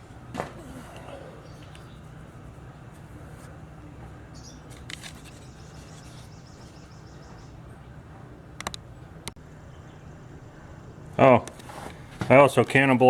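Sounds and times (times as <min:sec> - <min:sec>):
steady low hum: 0:00.0 - 0:13.0
small bird chirping: 0:04.3 - 0:07.9
sharp clicks: 0:08.6 - 0:09.4.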